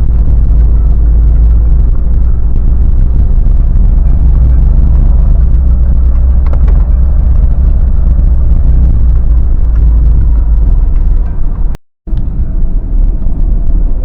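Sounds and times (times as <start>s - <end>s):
car engine rumble: 0.0s - 14.0s.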